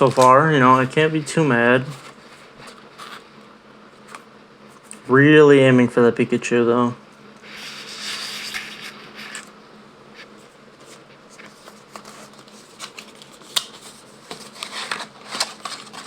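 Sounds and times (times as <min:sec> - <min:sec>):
paper and card rustling: 0:00.0 - 0:03.4, 0:07.4 - 0:09.5, 0:10.2 - 0:16.0.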